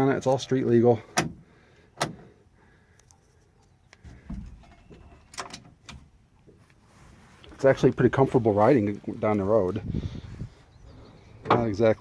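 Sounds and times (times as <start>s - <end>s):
sharp clicks of car fittings: 1.1s - 1.4s, 2.0s - 2.3s
dull thump: 4.0s - 4.6s.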